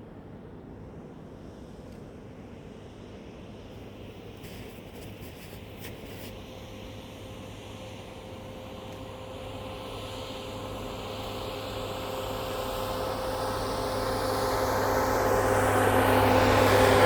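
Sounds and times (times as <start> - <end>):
train approaching: 6.8 - 17.0.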